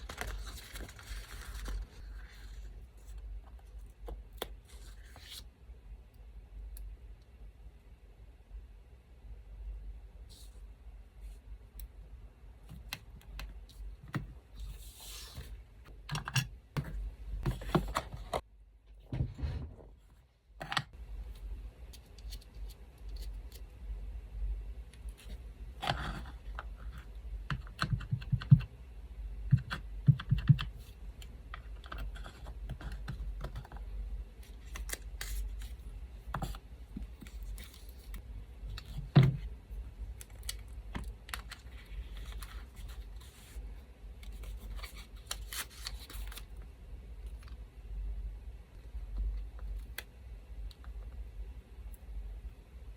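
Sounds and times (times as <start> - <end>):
paper rustling: 0.0 - 2.7.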